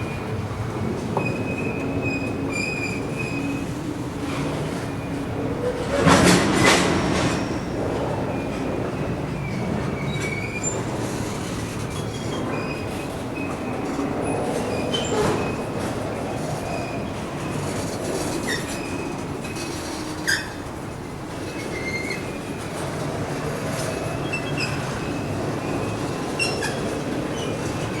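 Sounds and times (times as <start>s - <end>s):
freight train cars rumbling: 0.0s - 28.0s
high-pitched wheel squeals: 16.7s - 20.7s, 23.8s - 28.0s.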